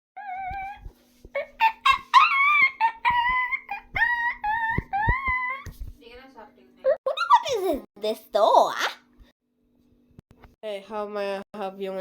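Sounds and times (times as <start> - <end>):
high-pitched voice singing: 2.6 - 5.8.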